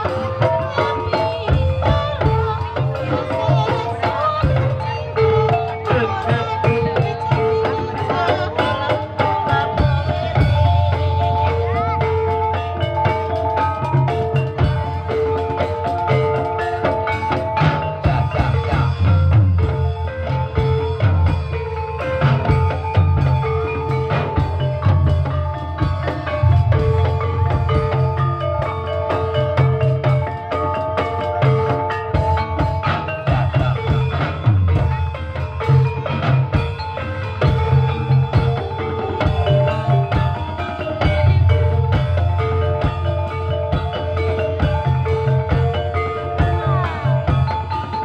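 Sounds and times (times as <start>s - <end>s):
drum strokes: 0.0s - 48.0s
mallet percussion tones: 0.0s - 48.0s
heavy pulsing bass: 24.8s - 29.0s.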